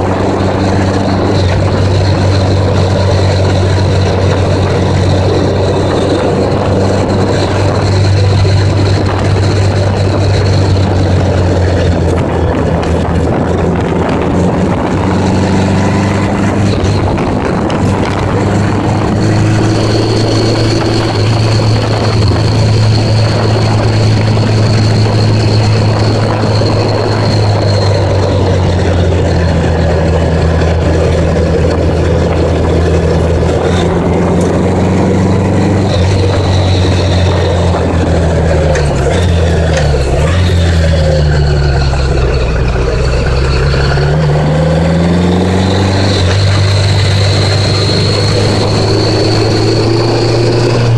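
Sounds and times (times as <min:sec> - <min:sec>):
motorcycle engine running: 0:00.0 - 0:50.9
wind noise: 0:00.0 - 0:50.9.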